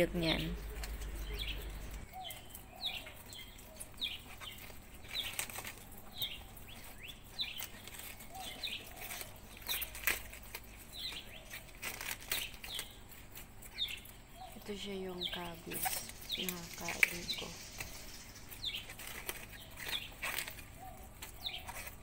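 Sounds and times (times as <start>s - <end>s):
faint lower bird calls: 0.0s - 13.0s, 13.7s - 22.0s
bird chirping: 0.0s - 22.0s
rabbits chewing cabbage leaves: 0.0s - 22.0s.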